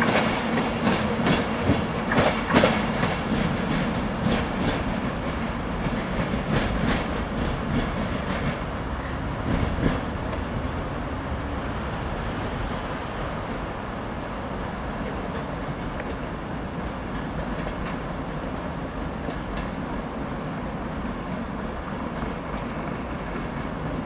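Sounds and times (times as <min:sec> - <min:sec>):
train rumble: 0:00.0 - 0:24.0
wheels clicking over rail joints: 0:14.5 - 0:24.0.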